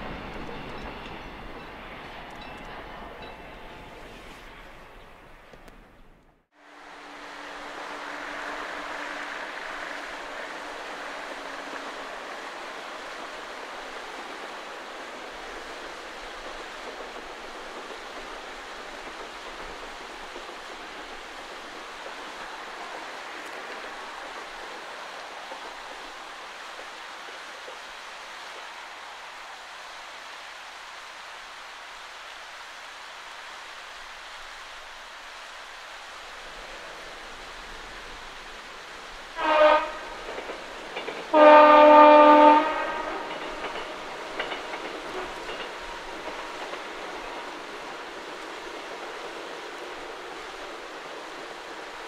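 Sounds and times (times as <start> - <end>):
distant electric train passing: 0.0 - 32.2, 33.2 - 52.0.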